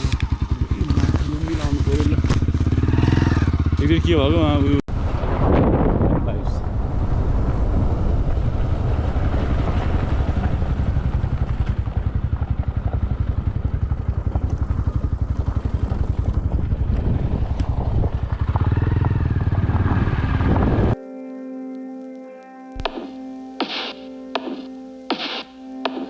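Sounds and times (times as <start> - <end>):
motorcycle engine running: 0.0 - 5.2, 6.6 - 21.0
wind on microphone: 4.9 - 12.3, 15.4 - 21.0.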